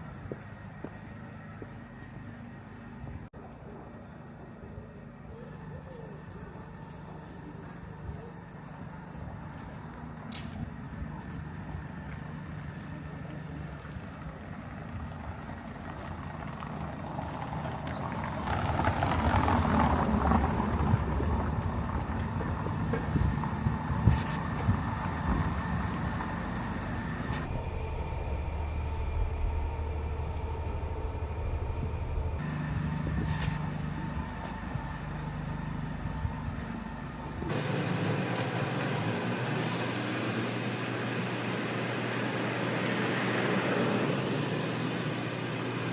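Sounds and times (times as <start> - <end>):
road noise: 0.0 - 27.6, 31.0 - 45.9
vehicle passing close by: 10.5 - 27.5, 32.4 - 45.9.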